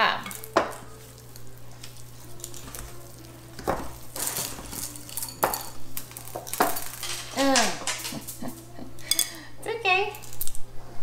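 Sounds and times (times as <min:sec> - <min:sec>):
dough stirred in mixing bowl: 0:00.0 - 0:08.4.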